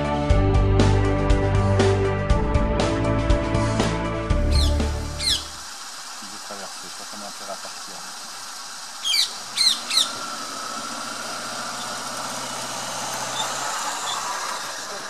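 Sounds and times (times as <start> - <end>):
bird squawks: 4.4 - 5.6, 9.0 - 10.3.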